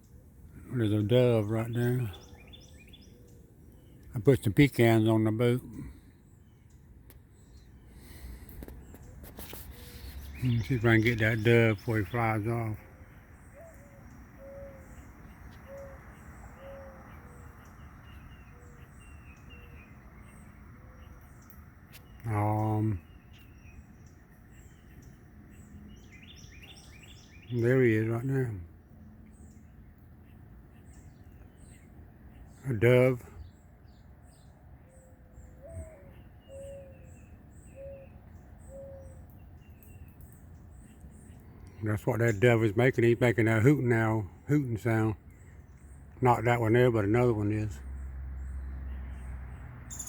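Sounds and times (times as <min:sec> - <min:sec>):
small birds chirping: 0:00.0 - 0:50.0
dove cooing: 0:13.6 - 0:15.0, 0:16.6 - 0:17.4, 0:35.6 - 0:37.1.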